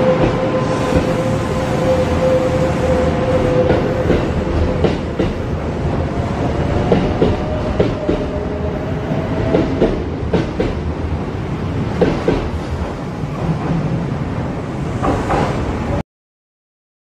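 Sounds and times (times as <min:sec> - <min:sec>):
train wheels clacking over rail joints: 0:03.6 - 0:05.4, 0:06.9 - 0:08.4, 0:12.0 - 0:12.6.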